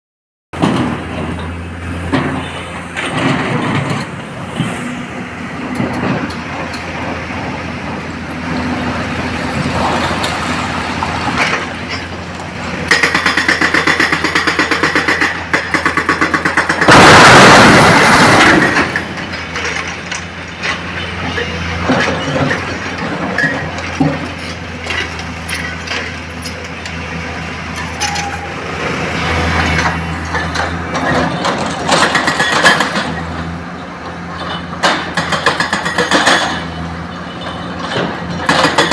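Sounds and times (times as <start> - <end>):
diesel machinery running: 0.6 - 38.9
knocks and clanks: 34.4 - 38.9.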